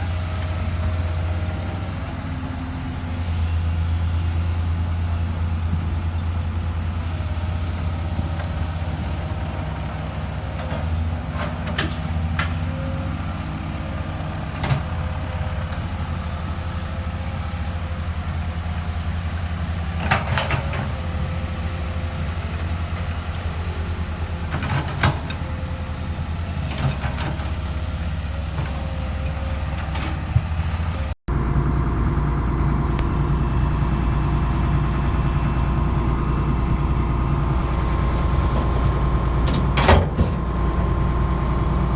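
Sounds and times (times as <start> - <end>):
deeper engine drone: 0.0 - 41.9
excavator engine running: 0.0 - 41.9
machine clanks and knocks: 24.5 - 25.6, 26.6 - 27.8, 39.4 - 40.6.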